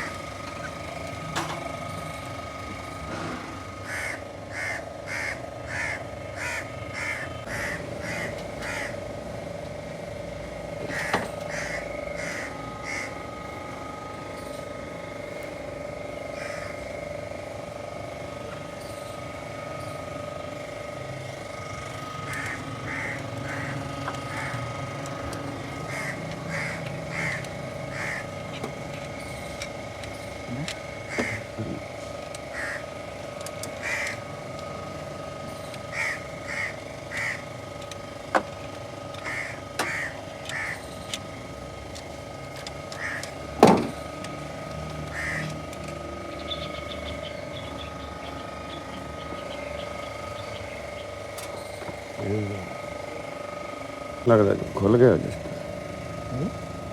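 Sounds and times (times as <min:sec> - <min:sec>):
bird harsh repeated calls: 0:03.8 - 0:09.1, 0:10.8 - 0:13.4, 0:16.2 - 0:17.0, 0:21.5 - 0:29.5, 0:30.9 - 0:38.2, 0:39.2 - 0:41.4, 0:42.9 - 0:43.5, 0:45.0 - 0:51.7.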